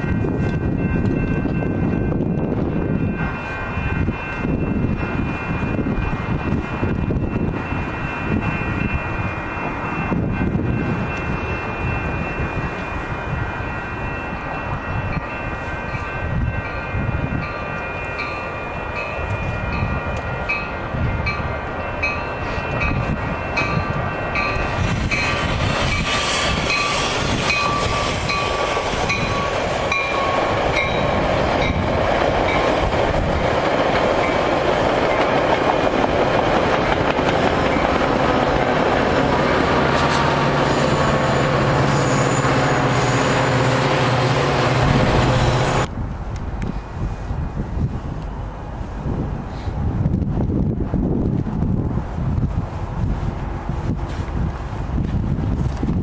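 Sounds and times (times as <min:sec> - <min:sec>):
train rumble and wheel clatter: 0:00.0 - 0:56.0
train horn: 0:40.0 - 0:45.8.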